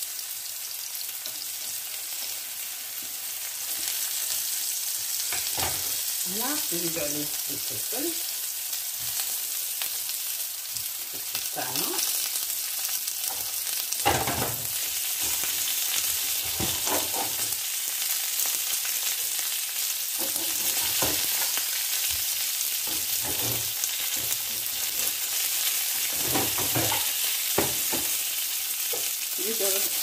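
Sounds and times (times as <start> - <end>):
vegetables sizzling in hot oil: 0.0 - 30.0
pepper rings knocking into pan: 26.1 - 28.2.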